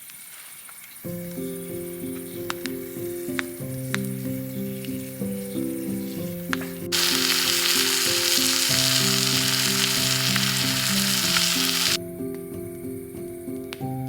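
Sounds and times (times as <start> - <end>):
background music: 1.1 - 14.0
food sizzling in a pan: 6.9 - 12.0.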